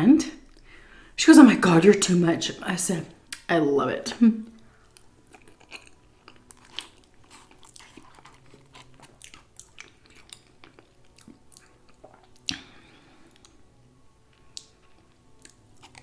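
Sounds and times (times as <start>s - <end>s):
chewing with wet smacks: 4.6s - 13.6s, 14.3s - 16.0s
crunching fried chicken: 4.7s - 13.6s, 14.3s - 16.0s.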